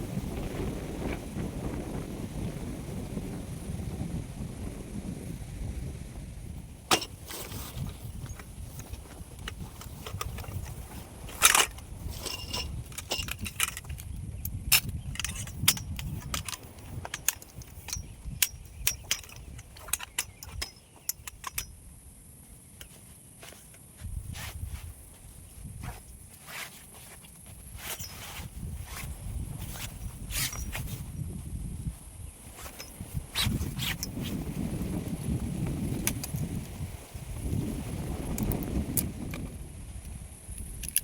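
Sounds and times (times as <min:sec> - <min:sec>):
sharp clicks and knocks: 0:06.9 - 0:21.7.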